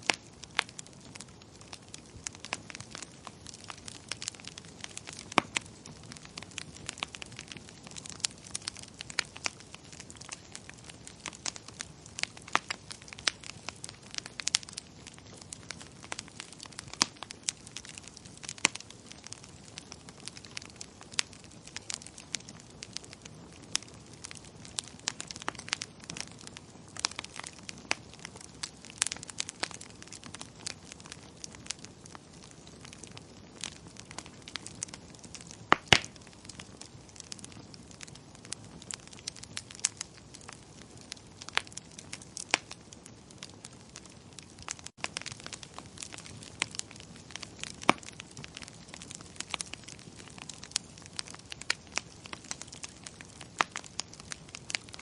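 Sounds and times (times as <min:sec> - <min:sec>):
low hiss of burning: 0:00.0 - 0:55.0
wood fire crackling: 0:00.0 - 0:55.0.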